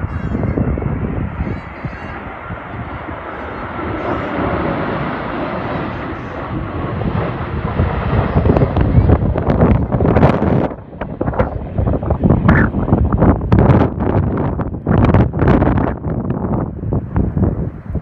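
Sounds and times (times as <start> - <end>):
jet engines rushing: 0.0 - 18.0
wind buffeting microphone: 0.0 - 18.0.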